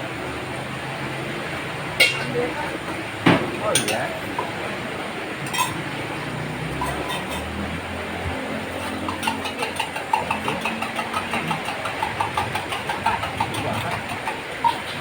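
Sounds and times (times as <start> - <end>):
metal spatula scraping a wok: 5.5 - 5.9, 6.6 - 15.0.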